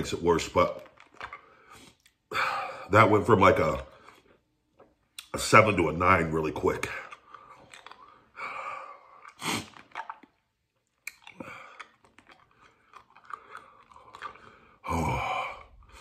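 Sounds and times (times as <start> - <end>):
man chewing food: 0.3 - 2.5, 3.8 - 5.3, 6.6 - 16.0
wet mouth clicks: 6.9 - 14.8.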